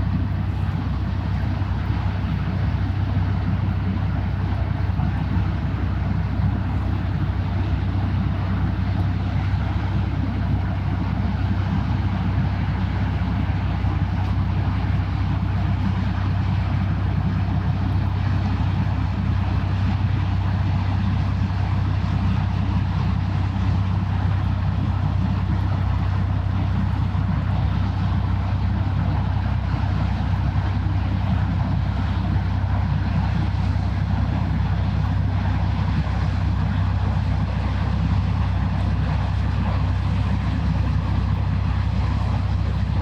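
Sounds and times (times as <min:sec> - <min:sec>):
boat engine drone: 0:00.0 - 0:43.0
rushing water noise: 0:24.1 - 0:43.0.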